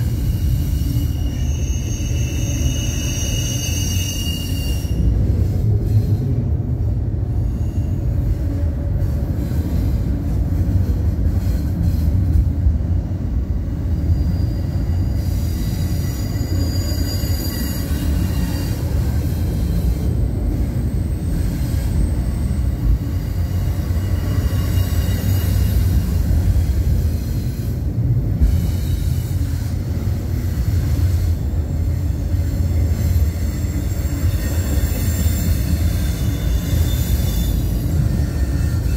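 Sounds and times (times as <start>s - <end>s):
high-pitched wheel squeals: 0.0s - 5.2s, 13.9s - 20.1s, 20.8s - 26.4s, 32.0s - 38.9s
freight train wheels rumbling: 0.0s - 38.9s.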